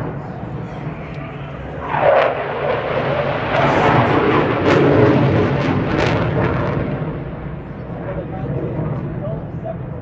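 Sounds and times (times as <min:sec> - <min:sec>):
jet engines rumbling: 0:00.0 - 0:10.0.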